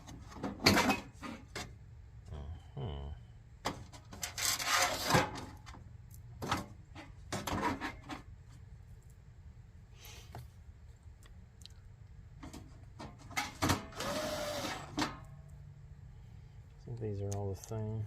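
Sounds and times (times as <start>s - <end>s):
parts scraping and rubbing: 4.1s - 5.5s, 7.0s - 8.3s.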